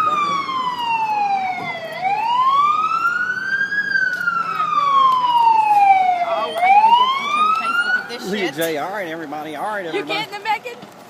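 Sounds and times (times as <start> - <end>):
fire engine siren wailing: 0.0 - 8.5.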